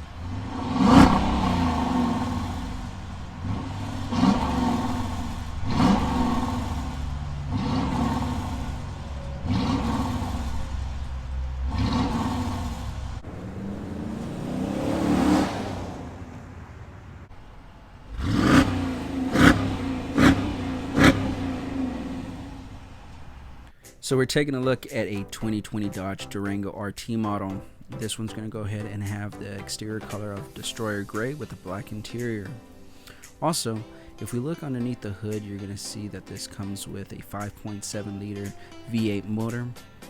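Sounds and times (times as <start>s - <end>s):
car engine revving: 0.0s - 23.7s
quick throttle blips: 0.0s - 23.7s.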